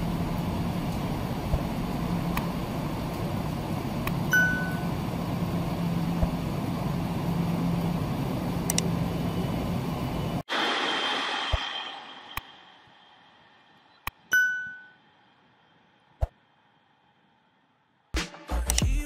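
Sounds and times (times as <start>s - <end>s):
train rumbling: 0.0s - 14.1s
low hum: 0.0s - 17.3s
ringing ding: 4.3s - 4.9s, 14.3s - 15.0s.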